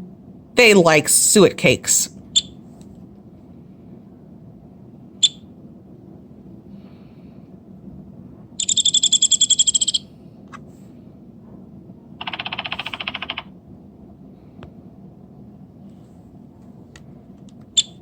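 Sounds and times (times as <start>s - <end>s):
woodpecker calling: 8.6s - 10.0s, 12.2s - 13.4s.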